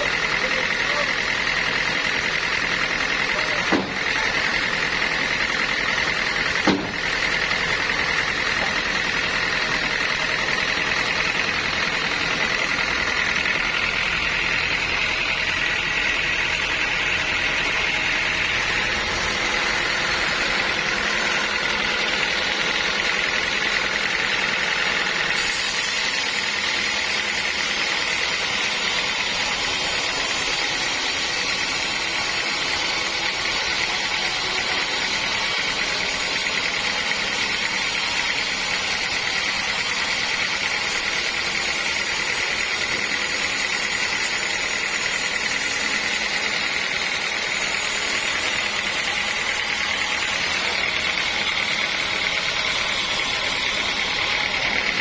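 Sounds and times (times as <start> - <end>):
sawmill saw running with whine: 0.0 - 55.0
sharp knocks: 3.6 - 4.1, 6.6 - 7.0.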